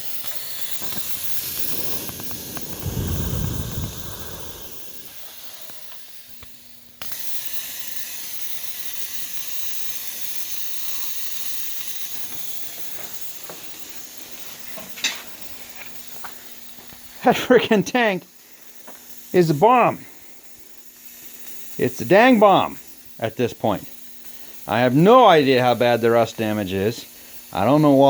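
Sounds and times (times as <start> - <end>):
compressed air hissing: 0.0 - 28.0
low rumble: 2.3 - 5.1.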